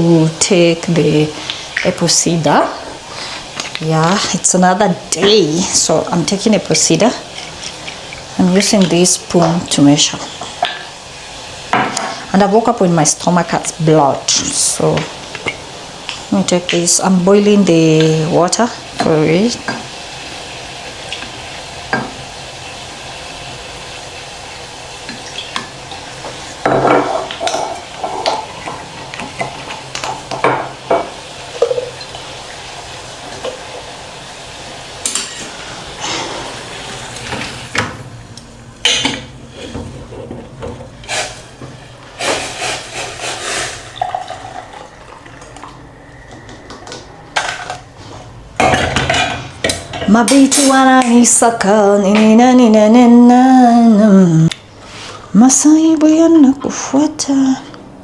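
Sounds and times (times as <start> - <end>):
hiss of water heating: 0.0 - 52.0, 52.6 - 56.4
dishes clinking: 26.6 - 32.3.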